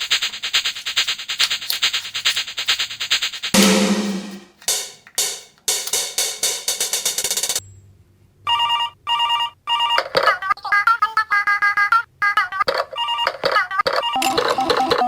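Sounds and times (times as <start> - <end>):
rattling run of clicks: 0.0 - 6.5
cymbal-like crash: 3.6 - 4.9
ringtone-like rings: 14.2 - 15.0.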